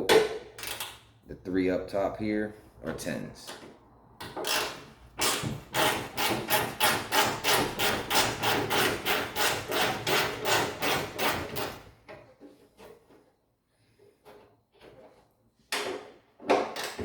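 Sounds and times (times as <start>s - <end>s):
hand ratchet clicking: 4.2s - 11.8s.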